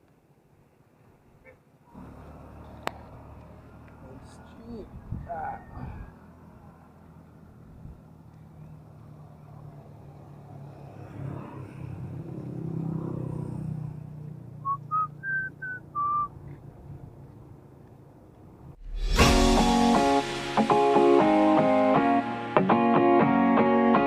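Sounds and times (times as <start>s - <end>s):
low vehicle hum: 1.9s - 10.8s
short whistled notes: 14.6s - 16.3s.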